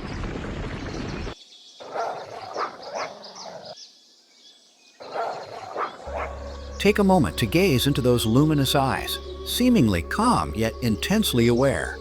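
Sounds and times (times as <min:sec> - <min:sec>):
wolves whining and yipping: 0:01.8 - 0:03.8, 0:05.1 - 0:06.5.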